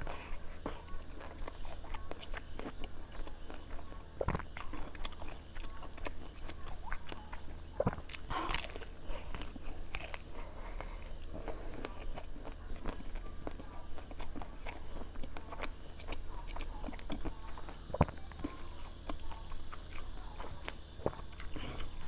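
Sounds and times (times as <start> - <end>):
biting and chewing: 0.0 - 22.0
low steady hum: 0.0 - 22.0.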